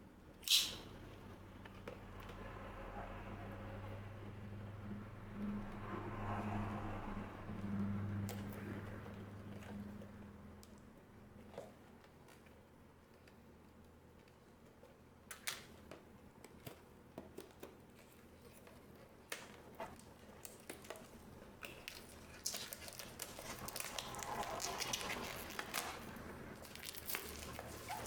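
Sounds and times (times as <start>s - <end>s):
plastic wrapping crinkling: 20.0s - 28.0s.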